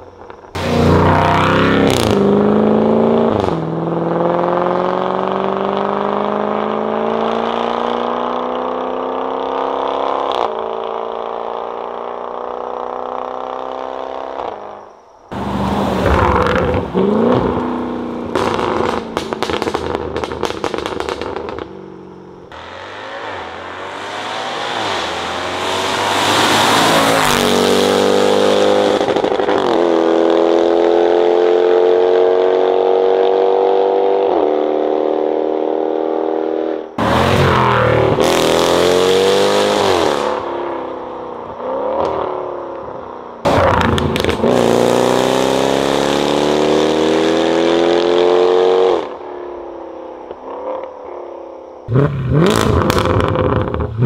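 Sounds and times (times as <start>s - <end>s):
car engine revving: 0.6s - 14.5s, 15.3s - 49.2s, 51.9s - 54.0s
car passing by: 15.4s - 17.7s, 22.6s - 29.0s
exhaust crackles: 15.4s - 29.8s, 51.9s - 54.0s.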